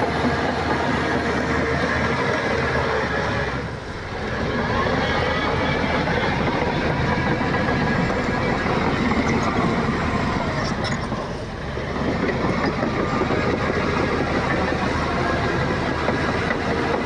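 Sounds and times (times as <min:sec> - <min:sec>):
bulldozer diesel engine under load: 0:00.0 - 0:17.0
steel tracks clattering: 0:00.0 - 0:17.0.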